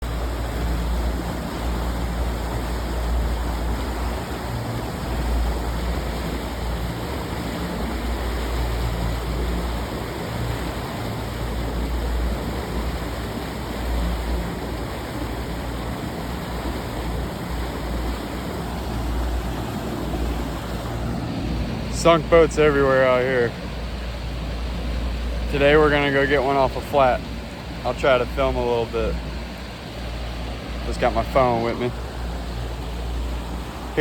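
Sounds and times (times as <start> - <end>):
rush of wind and water: 0.0 - 34.0.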